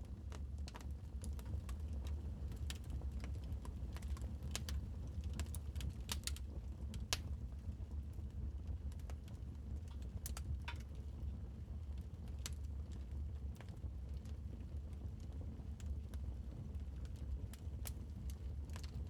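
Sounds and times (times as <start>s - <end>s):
low rumble of fire: 0.0s - 19.0s
wood fire pops and snaps: 4.0s - 6.4s, 7.1s - 7.4s.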